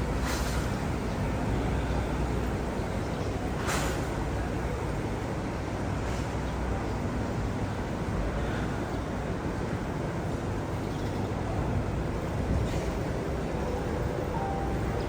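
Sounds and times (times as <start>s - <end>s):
airliner cabin drone: 12.2s - 15.0s.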